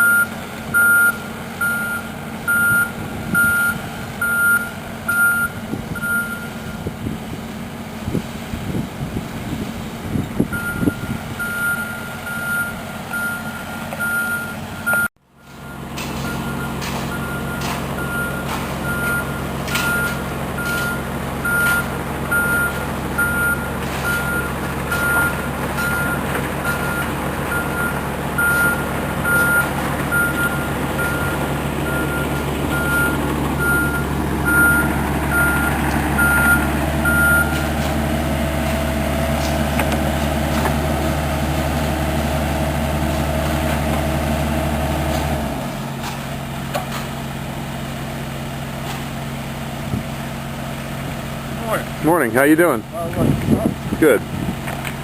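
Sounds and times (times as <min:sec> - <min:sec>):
backup alarm beeping: 0:00.0 - 0:06.8, 0:10.5 - 0:37.6
vehicle engine running: 0:00.0 - 0:55.0.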